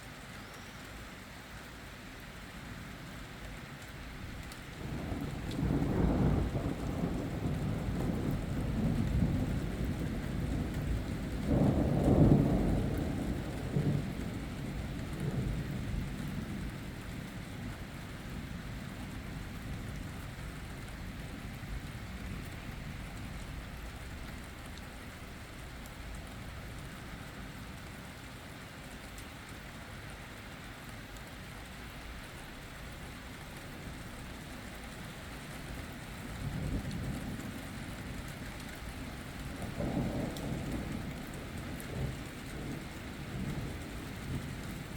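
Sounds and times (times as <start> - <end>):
steady rain: 0.0 - 44.9
thunder rumbling low: 4.8 - 16.8, 36.4 - 44.9.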